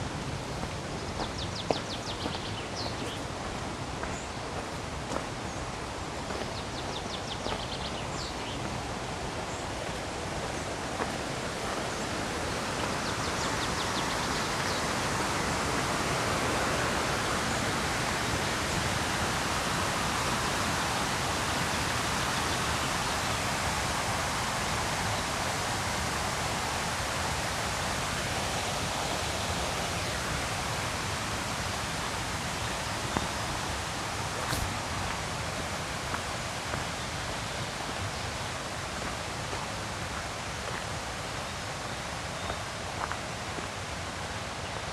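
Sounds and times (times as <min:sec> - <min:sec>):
river rapids rushing: 0:08.0 - 0:44.9.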